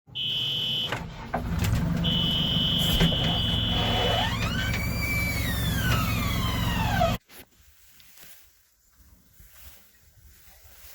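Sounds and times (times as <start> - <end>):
diesel engine rumbling: 0.1 - 7.2
high warning tone: 2.0 - 4.6.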